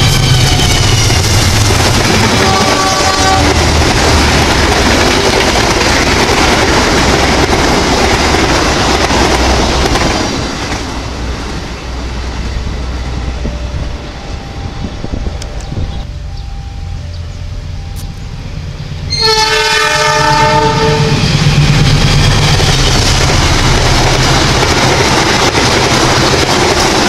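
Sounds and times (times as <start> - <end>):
distant train horn: 0.0 - 4.4, 12.4 - 22.6
train coaches rumbling past: 0.0 - 27.0.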